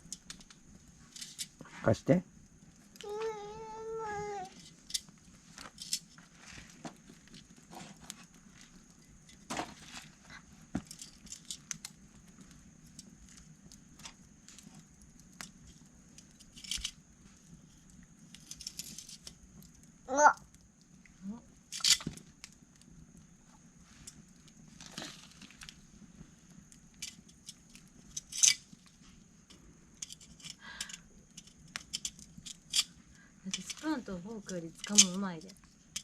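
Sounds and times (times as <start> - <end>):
campfire crackling: 0.0 - 36.0
child vocal sound: 3.0 - 4.6, 20.1 - 20.4.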